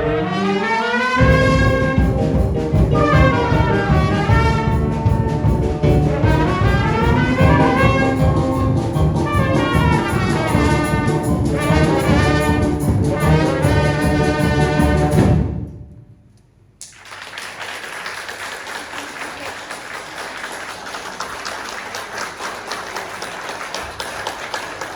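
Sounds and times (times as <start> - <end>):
brass band playing: 0.0 - 15.9
applause: 16.8 - 24.9.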